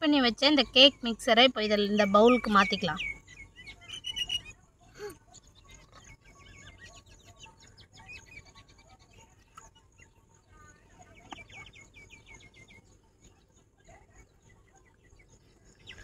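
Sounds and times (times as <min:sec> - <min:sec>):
birds chirping: 0:00.0 - 0:16.0
low bird call: 0:02.3 - 0:08.9.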